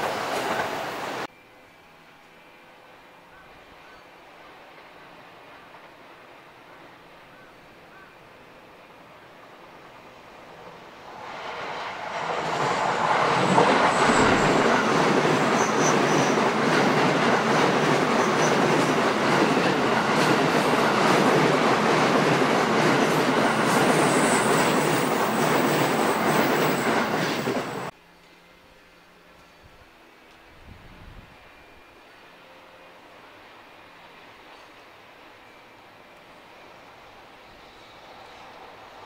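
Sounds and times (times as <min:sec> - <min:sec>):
wheels squealing: 0:12.4 - 0:16.6.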